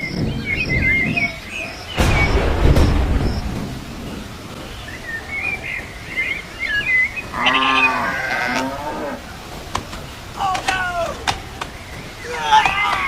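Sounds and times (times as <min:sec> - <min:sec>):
birds chirping: 0:00.0 - 0:13.0
farm animal bleating: 0:07.4 - 0:09.0.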